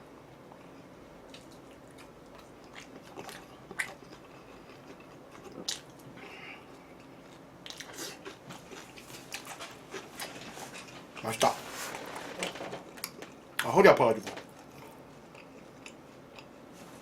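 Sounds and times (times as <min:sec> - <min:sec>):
chewing: 0:00.6 - 0:11.3, 0:14.5 - 0:16.6.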